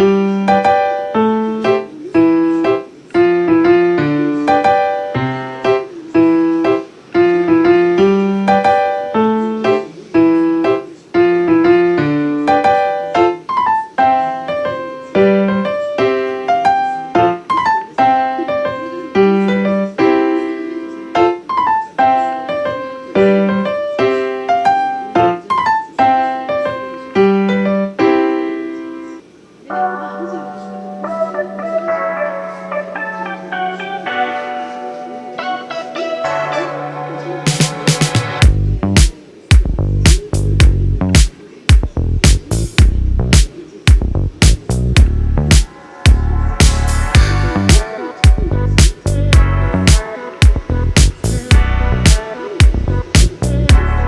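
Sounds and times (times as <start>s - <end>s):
piano music: 0.0s - 54.0s.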